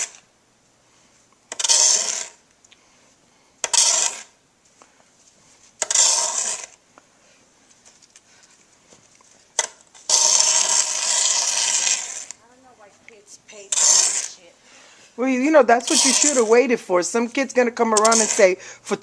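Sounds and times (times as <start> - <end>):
snow shovel scraping pavement: 1.6 - 2.4, 3.7 - 4.4, 5.8 - 6.8, 10.0 - 12.4, 13.6 - 14.5, 15.2 - 17.0, 17.8 - 18.7.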